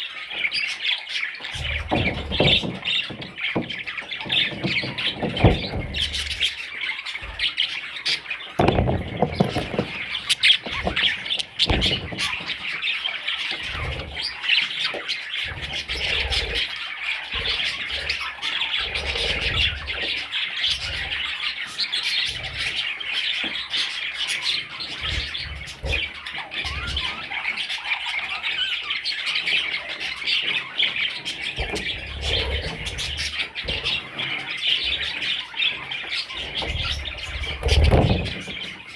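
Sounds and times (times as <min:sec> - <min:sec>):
parrot chicks squawking: 0:00.0 - 0:38.9
low thumps: 0:01.6 - 0:06.6, 0:08.6 - 0:12.6.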